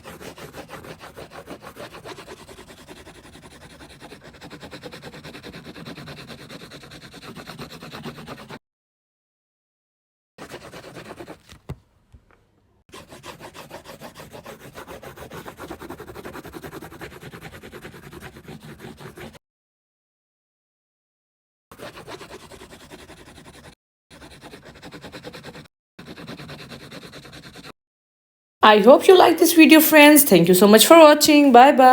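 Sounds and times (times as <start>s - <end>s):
coloring tool scratching on paper: 0.0s - 8.6s, 10.4s - 11.7s, 12.9s - 19.4s, 21.7s - 27.8s.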